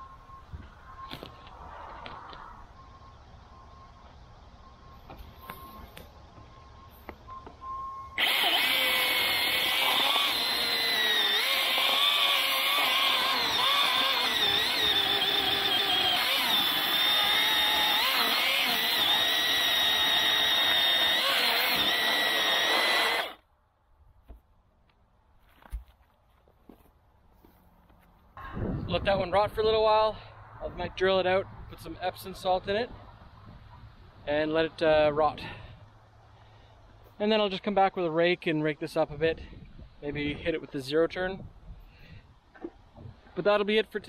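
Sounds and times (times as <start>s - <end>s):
chainsaw cutting wood: 8.2s - 23.4s.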